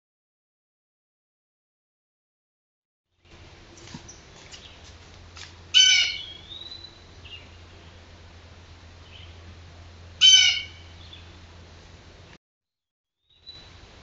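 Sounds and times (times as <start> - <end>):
bird calling: 4.0 - 5.0, 5.7 - 8.2, 9.0 - 9.5, 10.2 - 11.4.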